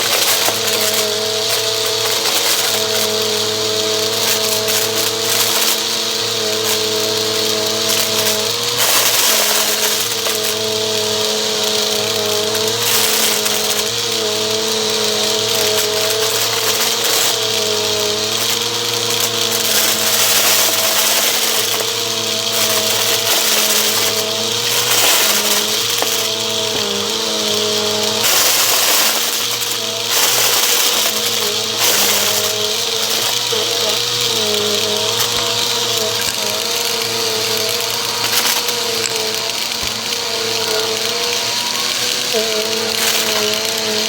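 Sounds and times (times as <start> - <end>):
vacuum cleaner running: 0.0 - 44.0.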